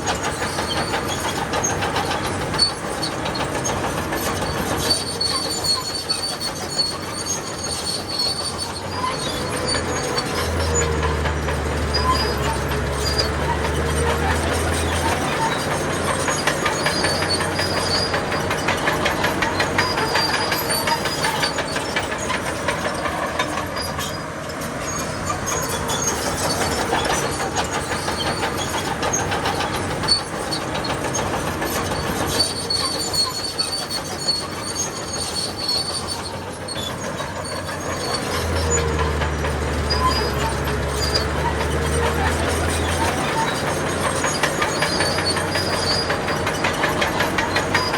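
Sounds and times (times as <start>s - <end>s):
bulldozer tracks clanking and squealing: 0.0s - 47.9s
diesel engine deep hum: 0.0s - 47.9s.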